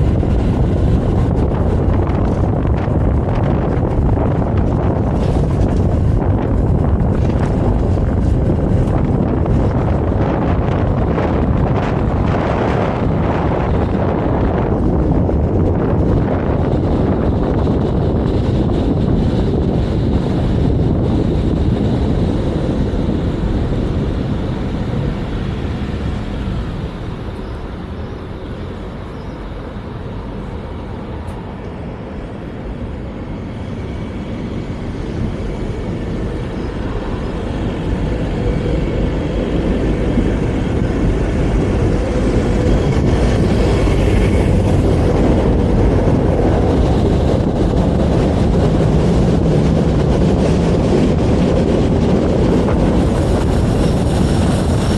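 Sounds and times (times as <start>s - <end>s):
tram wheels rumbling: 0.0s - 54.9s.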